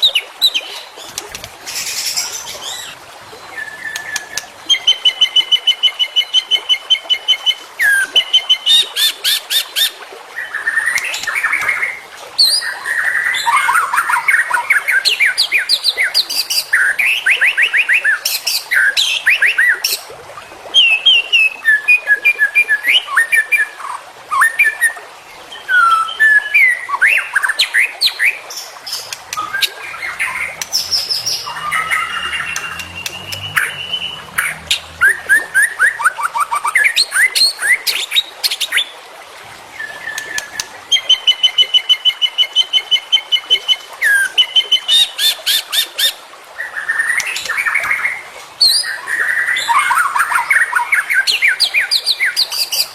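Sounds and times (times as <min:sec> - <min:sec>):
songbird singing varied song: 0:28.9 - 0:36.0.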